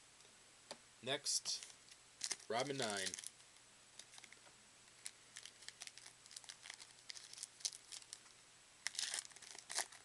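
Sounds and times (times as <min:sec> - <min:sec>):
wrapper crinkling and tearing: 0:01.6 - 0:03.4, 0:04.0 - 0:04.4, 0:05.0 - 0:08.2, 0:08.8 - 0:10.0.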